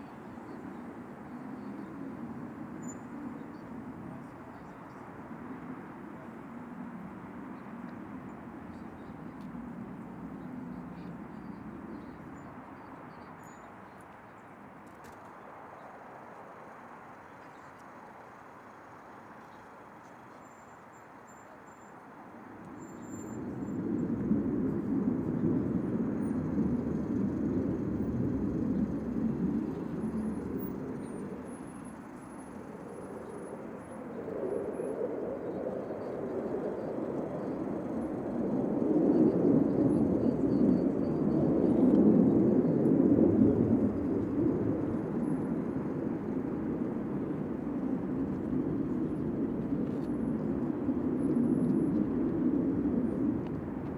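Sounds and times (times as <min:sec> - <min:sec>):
jet aircraft flying past: 0:21.8 - 0:53.9.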